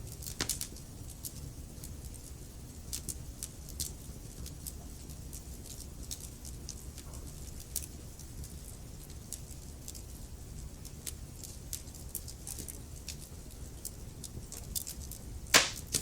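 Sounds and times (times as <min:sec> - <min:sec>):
fire popping and snapping: 0:00.1 - 0:02.1, 0:10.8 - 0:16.0
wood fire crackling: 0:00.1 - 0:10.0, 0:10.6 - 0:16.0.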